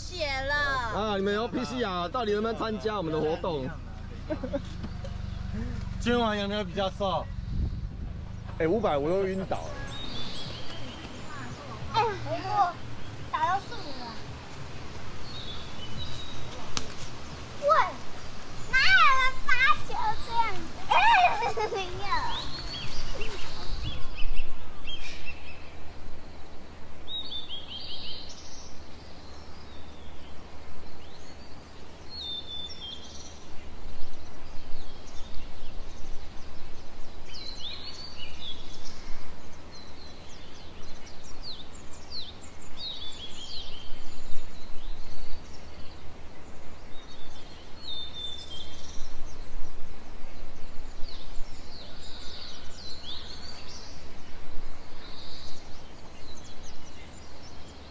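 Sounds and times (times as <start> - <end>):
low background rumble: 0.0 - 24.8
birds chirping and trilling: 0.0 - 57.9.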